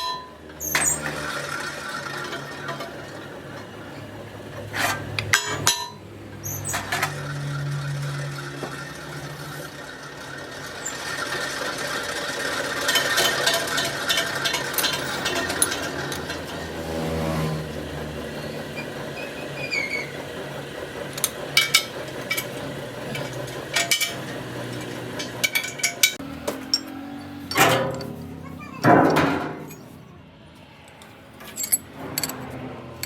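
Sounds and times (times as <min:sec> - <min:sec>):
machine humming and clattering: 0:00.0 - 0:33.0
sharp metal knocks: 0:23.2 - 0:29.9.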